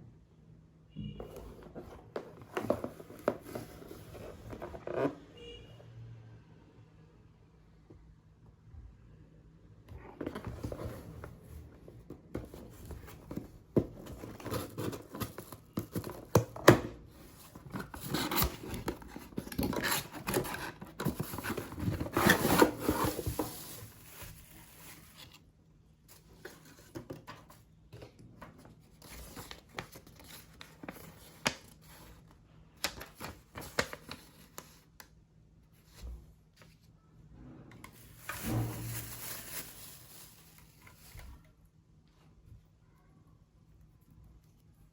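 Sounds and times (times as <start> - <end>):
packaging crinkling and tearing: 38.1 - 41.3.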